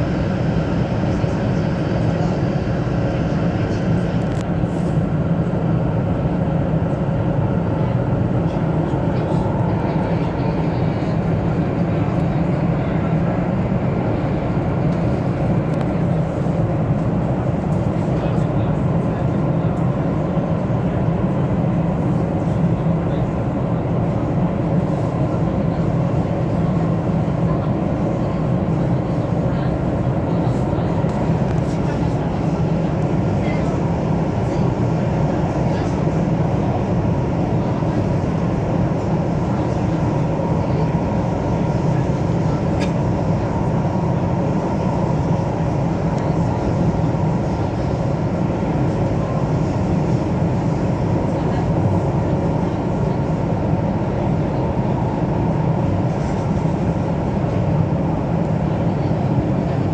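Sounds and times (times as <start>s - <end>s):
metro train cabin hum and hiss: 0.0s - 59.9s.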